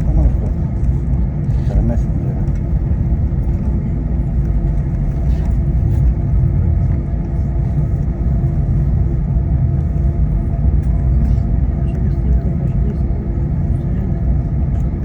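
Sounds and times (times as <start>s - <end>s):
constant hum: 0.0s - 15.0s
vehicle interior rumble: 0.0s - 15.0s.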